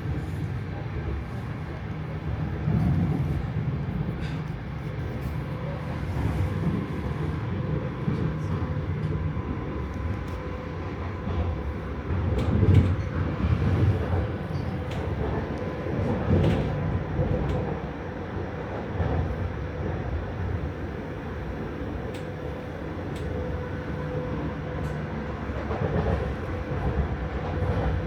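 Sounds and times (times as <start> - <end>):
train rumbling on rails: 0.0 - 28.0.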